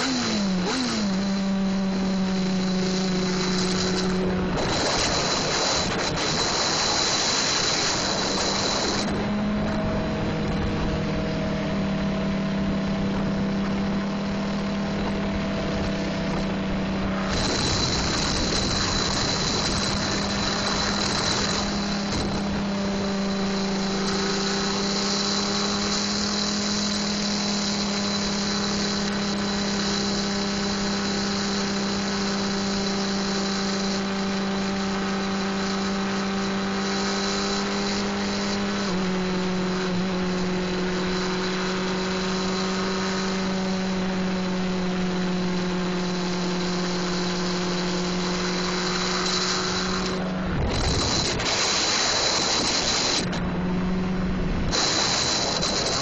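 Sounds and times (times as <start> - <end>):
rushing wind noise: 0.0 - 33.2, 35.9 - 56.0
motorcycle engine at steady pitch: 0.0 - 56.0.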